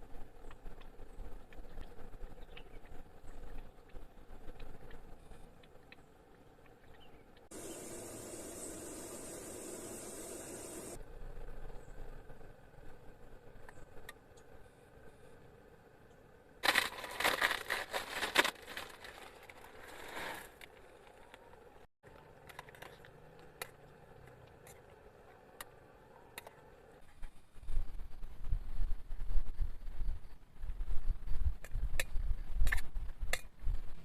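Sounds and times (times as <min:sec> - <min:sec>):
crinkling handling noise: 0:16.6 - 0:23.7.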